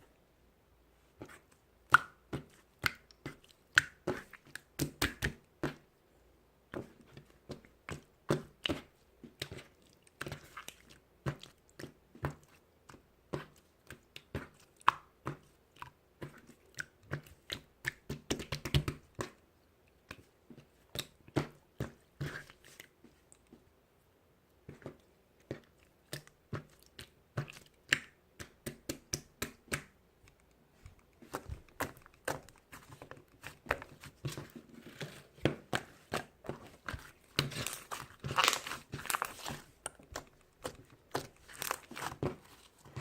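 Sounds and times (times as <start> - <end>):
crisp crunches and clicks: 37.0 - 43.0.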